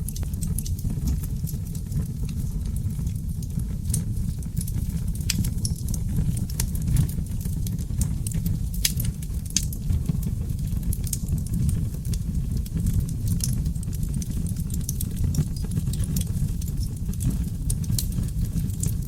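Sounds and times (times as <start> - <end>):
logs crackling and popping: 0.0 - 19.0
low roar of flames: 0.0 - 19.0.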